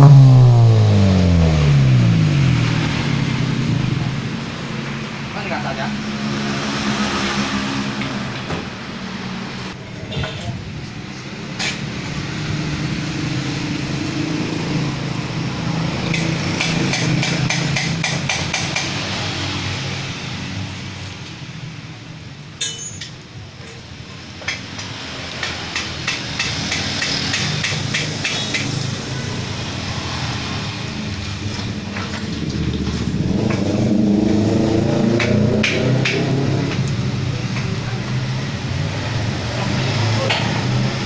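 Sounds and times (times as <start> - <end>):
car engine exhaust note: 0.0 - 9.8, 28.4 - 41.0.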